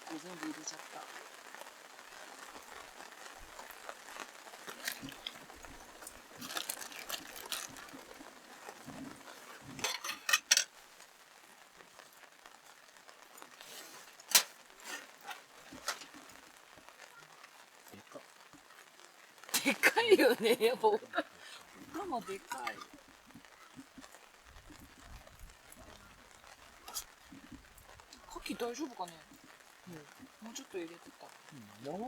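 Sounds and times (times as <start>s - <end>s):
crinkling: 0.0s - 32.0s
tableware clinking against pot: 9.8s - 10.7s.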